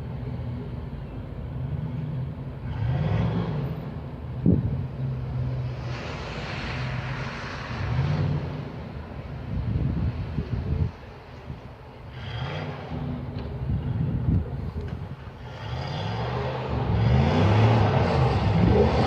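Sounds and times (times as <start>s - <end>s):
rush of road noise: 0.0s - 19.0s
car engine revving: 5.2s - 9.4s, 15.3s - 19.0s.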